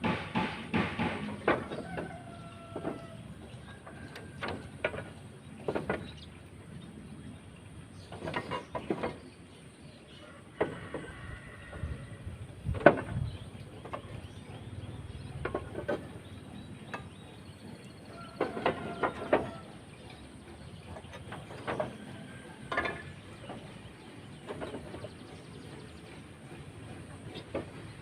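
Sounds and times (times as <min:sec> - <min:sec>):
knocks of roofing materials: 0:00.0 - 0:03.2, 0:04.0 - 0:06.2, 0:10.5 - 0:11.8, 0:12.6 - 0:14.1, 0:15.4 - 0:16.2, 0:18.2 - 0:19.7.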